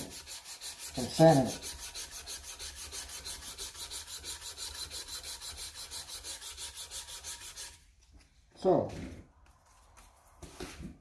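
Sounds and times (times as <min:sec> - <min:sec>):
sandpaper rubbing on wood: 0:00.0 - 0:07.8.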